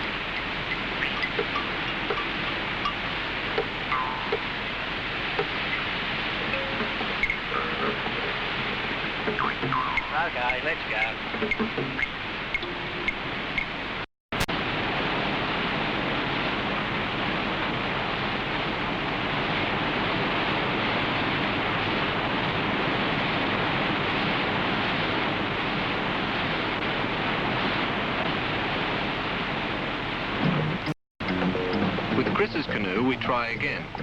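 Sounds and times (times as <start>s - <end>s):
river rapids rushing: 0.0s - 11.4s.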